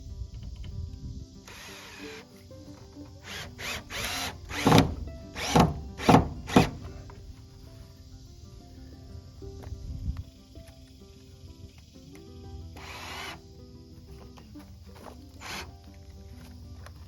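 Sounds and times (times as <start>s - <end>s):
background music: 0.0s - 17.0s
power drill short bursts: 1.5s - 2.2s, 3.2s - 6.8s, 12.8s - 13.4s, 15.4s - 15.7s.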